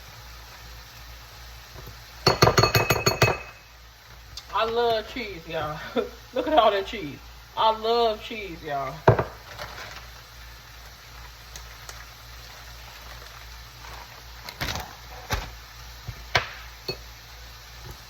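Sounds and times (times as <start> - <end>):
low steady background noise: 0.0 - 18.0
kitchen knocks and clicks: 2.3 - 3.6.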